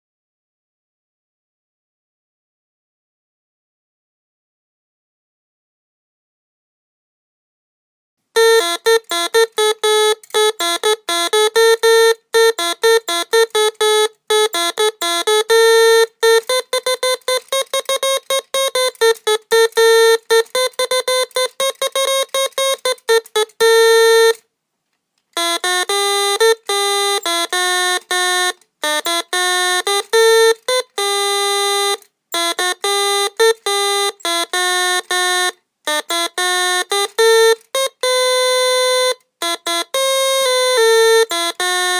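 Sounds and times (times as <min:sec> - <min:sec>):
electronic organ notes: 0:08.4 - 0:24.4, 0:25.4 - 0:41.9.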